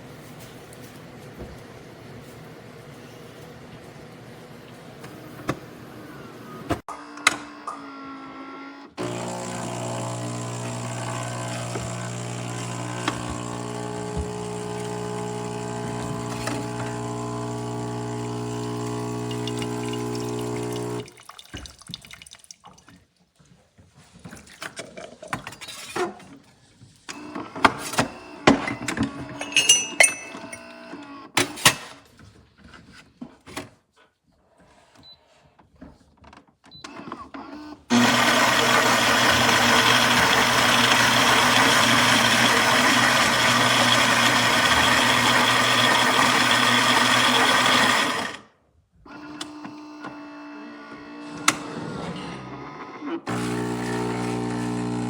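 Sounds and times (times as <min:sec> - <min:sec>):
espresso machine pump humming: 0:09.0 - 0:21.1, 0:37.9 - 0:48.4, 0:53.3 - 0:55.0.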